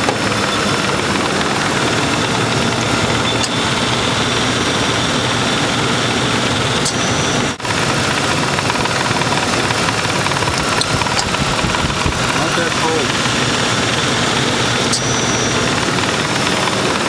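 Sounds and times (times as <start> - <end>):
air conditioning compressor running: 0.0 - 17.0
car engine idling: 0.0 - 17.0.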